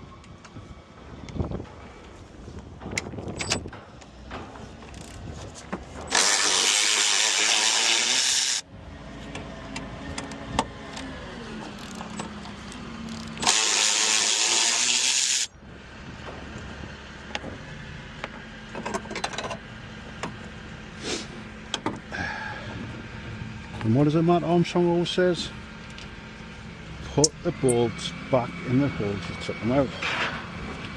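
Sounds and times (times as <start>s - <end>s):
power tool whirring: 6.0s - 8.7s, 13.0s - 15.5s.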